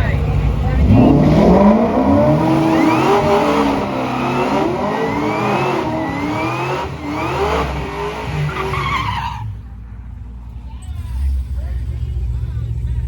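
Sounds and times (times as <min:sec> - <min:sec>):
racing car accelerating through gears: 0:00.2 - 0:09.4.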